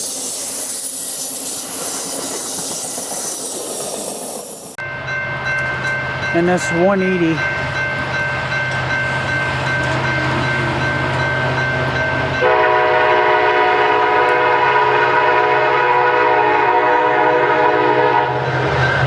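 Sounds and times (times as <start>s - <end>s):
freight train rumbling past: 0.0s - 19.0s
locomotive air horn: 12.4s - 18.6s.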